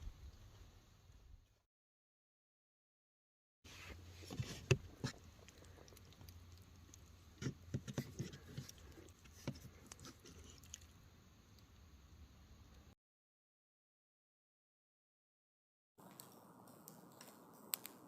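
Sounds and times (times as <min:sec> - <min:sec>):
chewing: 0:04.8 - 0:11.0.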